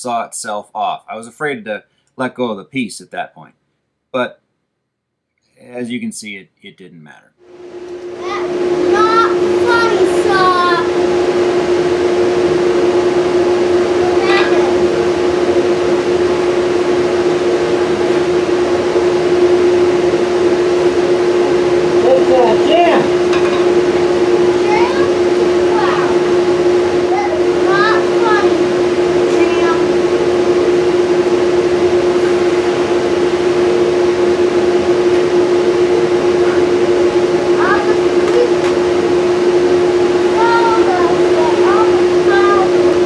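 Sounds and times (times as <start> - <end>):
table saw humming: 7.5 - 43.0.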